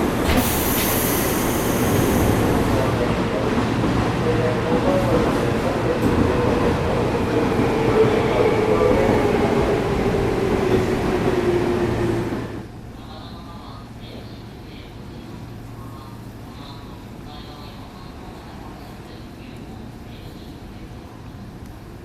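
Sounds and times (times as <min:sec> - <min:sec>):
electric train wheels rumbling: 0:00.0 - 0:12.7.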